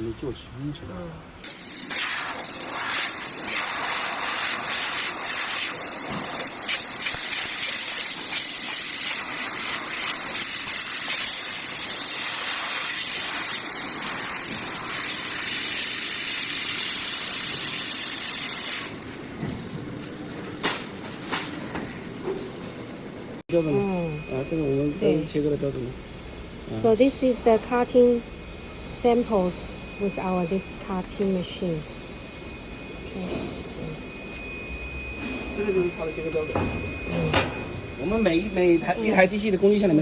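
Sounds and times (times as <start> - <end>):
high-pressure gas hissing: 1.4 - 19.0.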